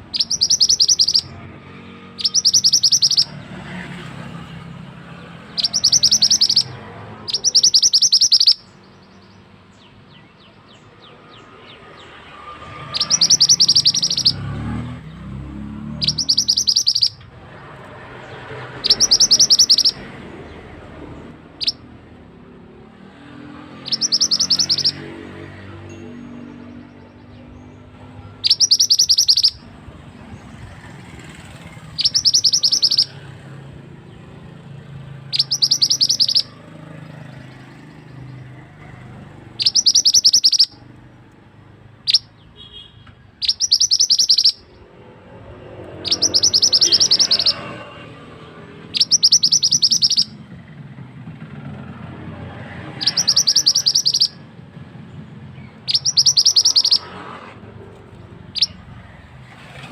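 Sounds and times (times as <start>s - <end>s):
bird singing sharp high notes: 0.0s - 22.2s, 22.8s - 41.0s, 41.9s - 50.6s, 52.9s - 59.9s.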